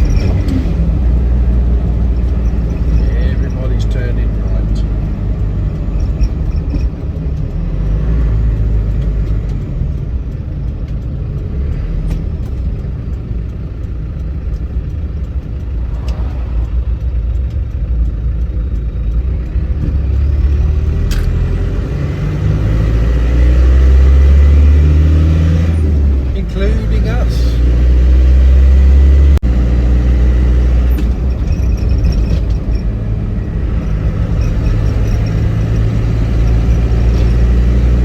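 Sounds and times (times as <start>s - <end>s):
low engine drone: 0.0s - 27.3s
road rumble: 0.0s - 38.0s.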